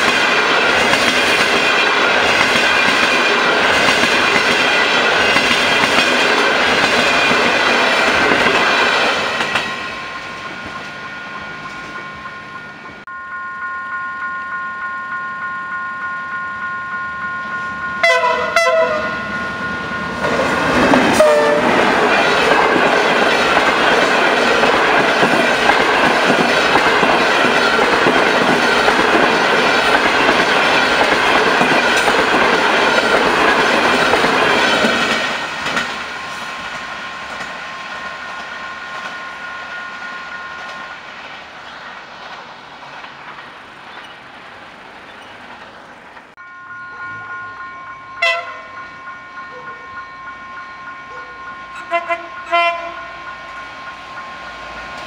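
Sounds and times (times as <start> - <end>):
train wheels clickety-clack: 0.0 - 10.9, 20.2 - 39.3, 39.9 - 46.4
crossing warning bell ringing: 0.0 - 55.0
train horn: 18.0 - 20.0, 20.7 - 21.8, 46.4 - 53.9.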